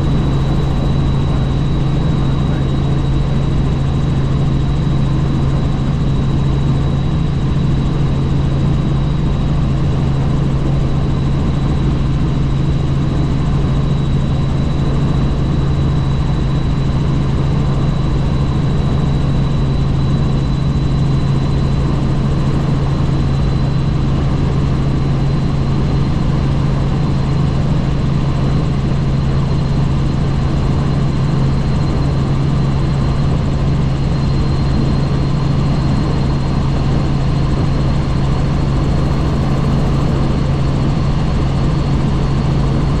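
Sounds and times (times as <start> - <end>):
thin high whine: 0.0 - 2.8, 38.4 - 40.5
helicopter rotor and engine drone: 0.0 - 43.0.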